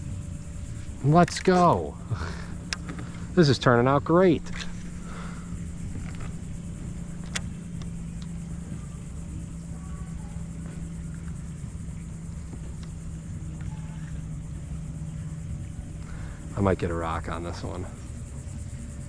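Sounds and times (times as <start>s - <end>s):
low motor hum: 0.0s - 19.0s
low rumble: 0.0s - 19.0s
sharp click: 7.2s - 8.3s.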